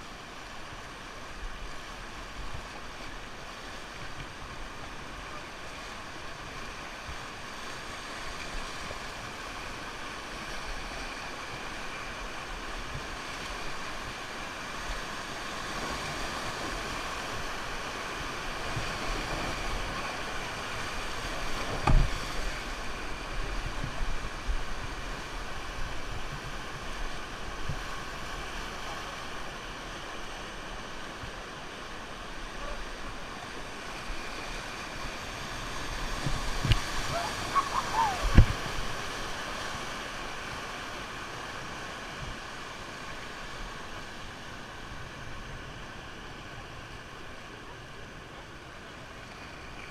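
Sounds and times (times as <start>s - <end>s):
rushing river water: 0.0s - 49.9s.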